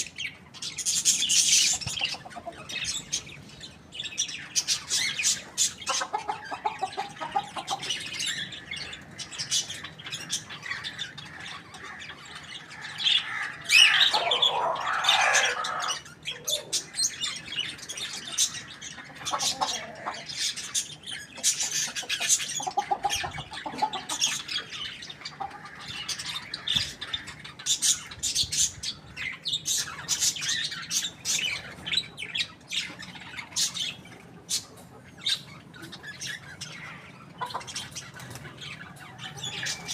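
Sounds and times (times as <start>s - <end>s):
chickens chirping and squawking: 0.0s - 39.9s
chicken drawn-out call: 12.6s - 16.8s, 18.5s - 20.5s.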